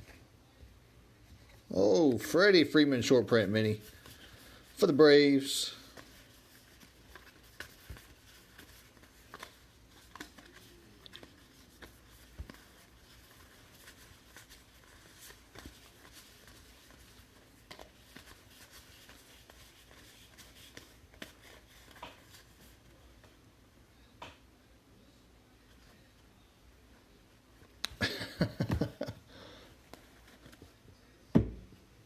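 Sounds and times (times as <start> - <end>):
cards being flipped through: 3.6 - 23.4.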